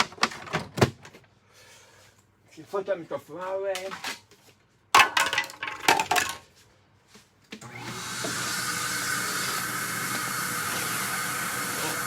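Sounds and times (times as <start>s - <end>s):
vacuum cleaner motor running: 7.6s - 12.0s.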